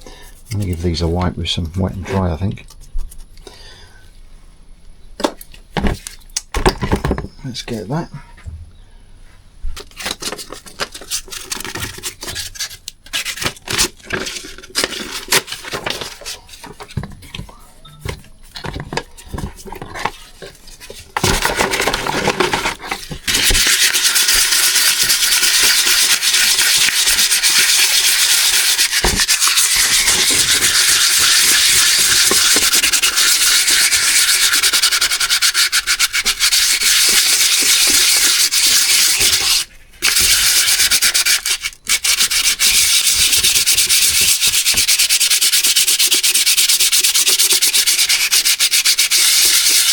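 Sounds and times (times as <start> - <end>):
sandpaper rubbing on metal: 21.2 - 49.9.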